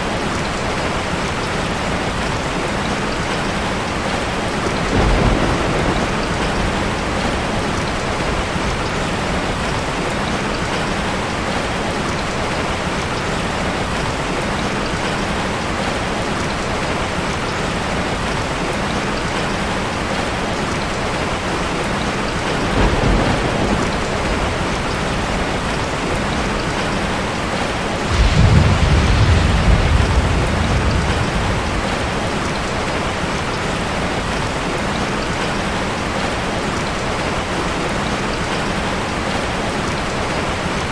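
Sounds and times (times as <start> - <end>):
steady rain falling: 0.0 - 40.9
thunder rolling: 4.8 - 9.7, 22.5 - 27.2, 28.1 - 34.5.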